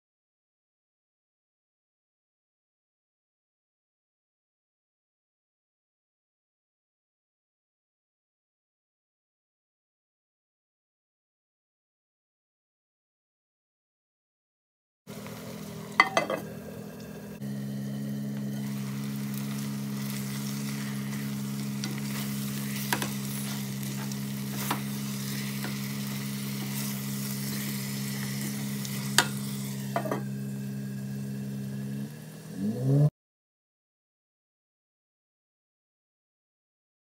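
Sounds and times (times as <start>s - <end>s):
meat and onions sizzling in a pot: 15.1s - 32.7s.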